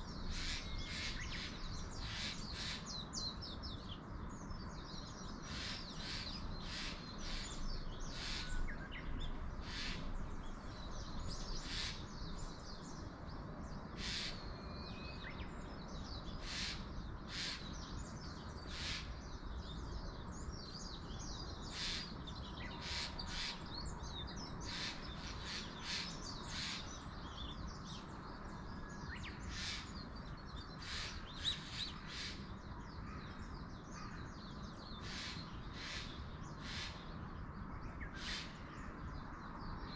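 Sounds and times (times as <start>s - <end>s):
low rumble of wind: 0.0s - 39.9s
birds calling in sharp high calls: 0.2s - 3.4s, 5.3s - 10.2s, 11.3s - 12.4s, 14.0s - 15.4s, 16.3s - 19.3s, 20.9s - 27.6s, 28.9s - 37.2s, 38.0s - 38.9s.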